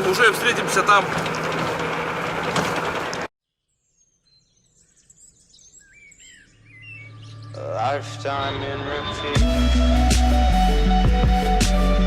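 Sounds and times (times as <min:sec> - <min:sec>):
car road and engine hum: 0:00.0 - 0:03.3
faint bird chirps: 0:03.5 - 0:07.6.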